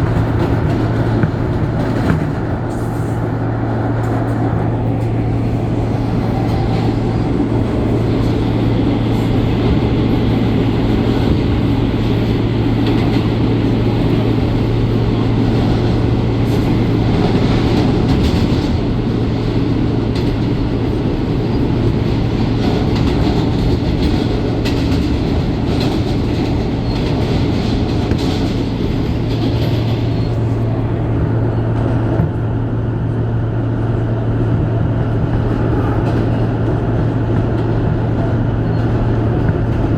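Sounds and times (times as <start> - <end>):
wheels rolling on rails: 0.0 - 39.9.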